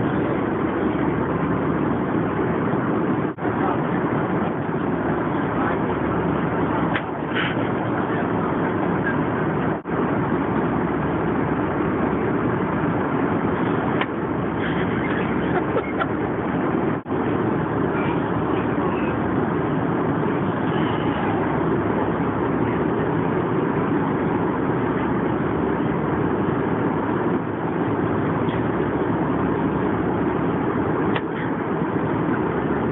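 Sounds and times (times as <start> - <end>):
airplane cabin engine roar: 0.0 - 32.9.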